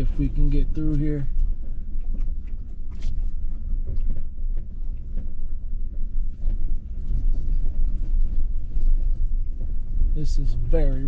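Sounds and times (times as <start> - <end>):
truck engine and tyres rumbling: 0.0 - 11.0.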